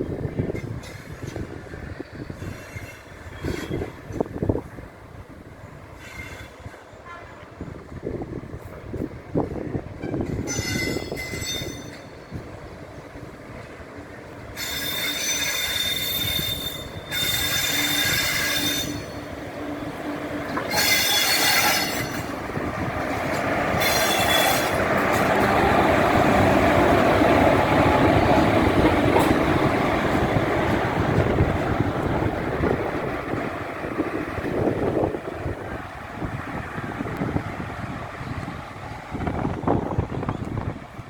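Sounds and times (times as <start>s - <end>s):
train rolling rumble: 0.0s - 41.0s
train wheels squealing: 0.5s - 4.1s, 6.0s - 6.8s, 10.1s - 12.4s, 14.6s - 19.3s, 20.6s - 22.4s, 23.8s - 25.4s.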